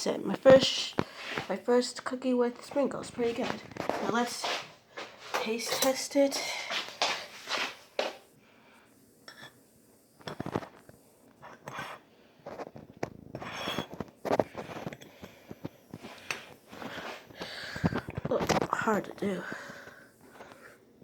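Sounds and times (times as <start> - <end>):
utensil scraping a dish: 13.4 - 14.0.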